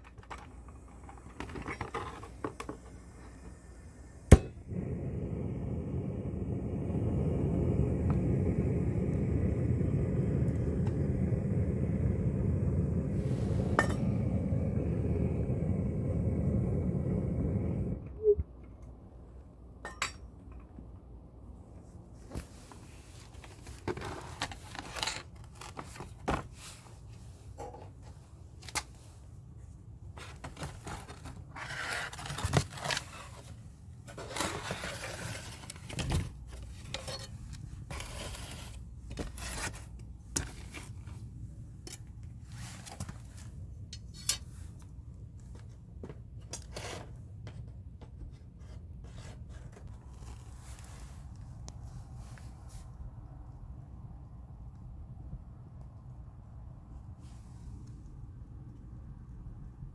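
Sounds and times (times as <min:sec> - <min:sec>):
low steady hum: 0:00.1 - 0:25.1.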